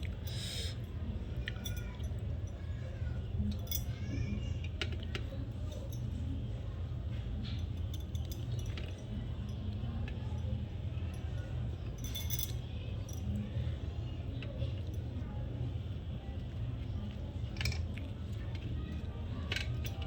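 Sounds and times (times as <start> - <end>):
steady low hum: 0.0 - 3.8.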